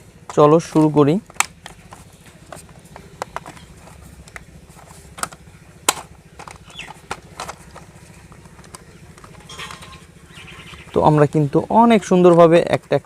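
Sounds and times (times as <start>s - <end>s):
plastic toy parts clicking: 0.3s - 10.0s.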